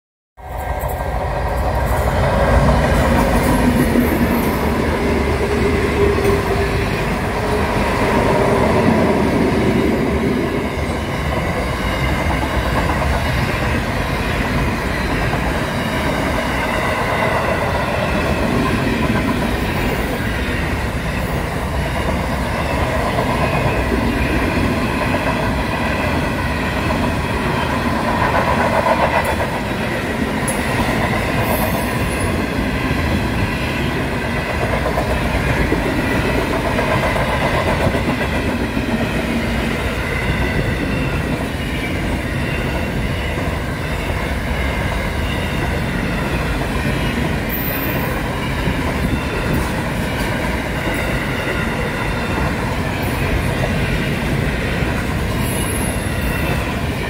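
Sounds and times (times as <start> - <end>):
diesel locomotive engines: 0.4 - 57.0
train wheels rolling on rails: 0.4 - 57.0
high ringing from wheels: 39.3 - 57.0.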